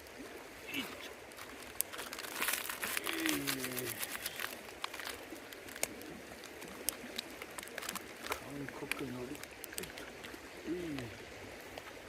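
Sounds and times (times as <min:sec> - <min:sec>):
river water rushing: 0:00.0 - 0:12.0
sharp crackling clicks: 0:01.3 - 0:10.4
man humming low: 0:10.6 - 0:11.2.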